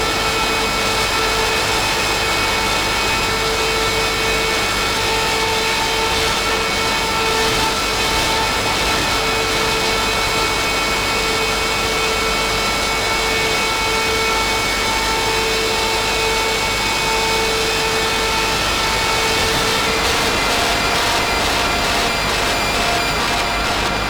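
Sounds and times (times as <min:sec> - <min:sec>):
harsh distorted noise drone: 0:17.6 - 0:24.0.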